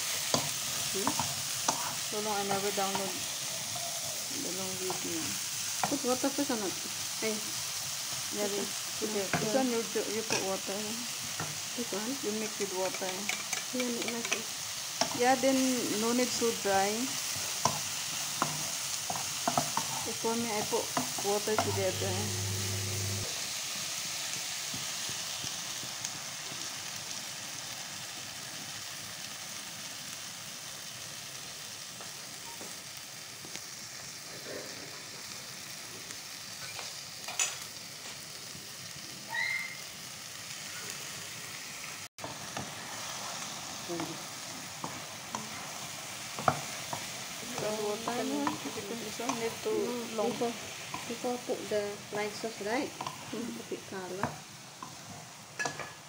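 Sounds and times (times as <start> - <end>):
vegetables and egg sizzling in pan: 0.0 - 56.0.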